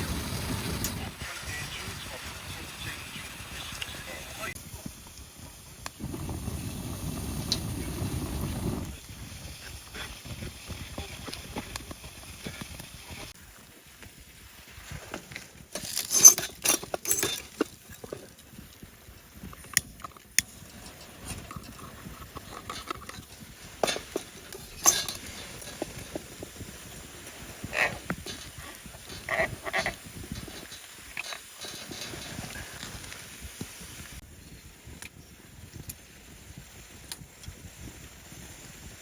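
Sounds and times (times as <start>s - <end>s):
camping gear knocking and clattering: 14.9s - 34.2s.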